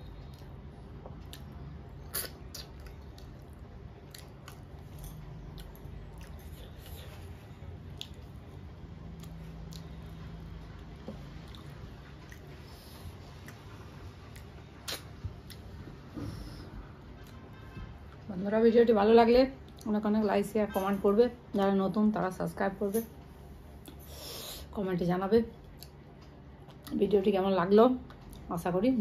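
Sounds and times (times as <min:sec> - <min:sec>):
faint low hum: 0:00.0 - 0:29.0
person chewing food: 0:00.2 - 0:15.8
sharp mouth clicks: 0:01.3 - 0:03.3, 0:14.8 - 0:15.6.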